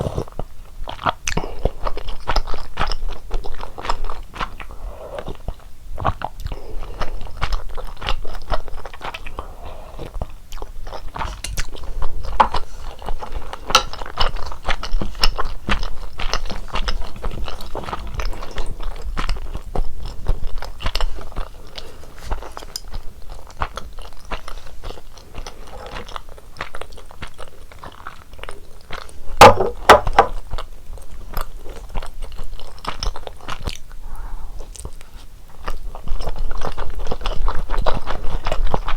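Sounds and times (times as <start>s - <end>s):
chewing and biting food: 0.0s - 34.0s, 34.6s - 38.9s
wet mouth clicks and crunches: 10.0s - 29.1s.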